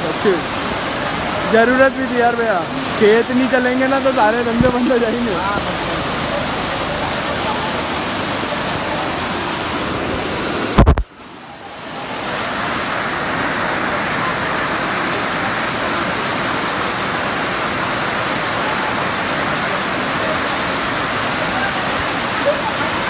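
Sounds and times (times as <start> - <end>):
heavy rain pouring: 0.0 - 23.0
loud thump: 10.8 - 11.1.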